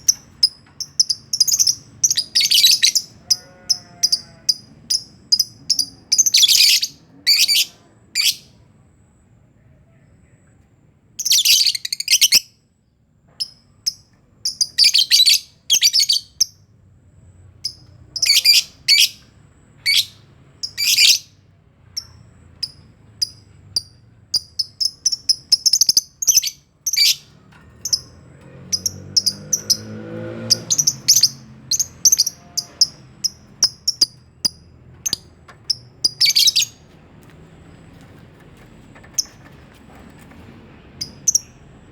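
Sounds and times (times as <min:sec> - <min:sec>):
lovebirds chirping and screeching: 0:00.0 - 0:08.5, 0:11.2 - 0:12.4, 0:14.5 - 0:16.6, 0:17.7 - 0:19.2, 0:19.8 - 0:21.4, 0:22.0 - 0:36.9, 0:41.0 - 0:41.7.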